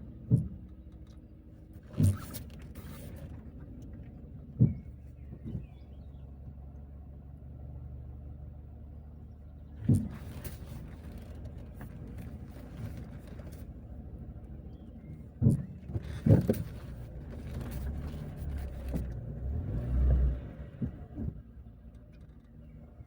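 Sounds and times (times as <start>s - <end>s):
knocks and thumps over bumps: 0.0s - 6.5s, 9.7s - 23.0s
car rumbling on rough road: 0.0s - 23.0s.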